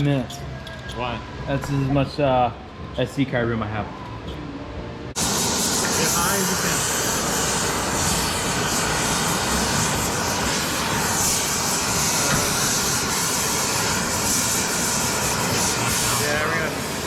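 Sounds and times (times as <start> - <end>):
gas flame hissing: 5.1 - 17.0.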